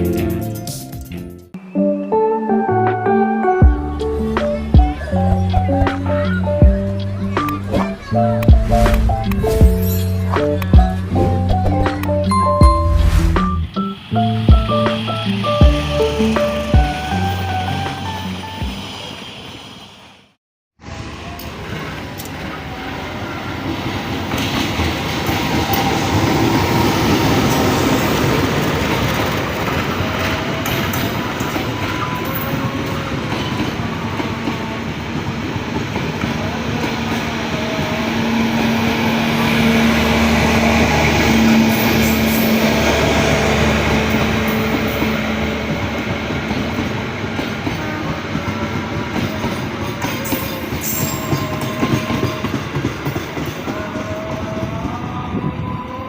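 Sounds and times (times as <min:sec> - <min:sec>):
train wheels on rails: 0:20.9 - 0:56.0.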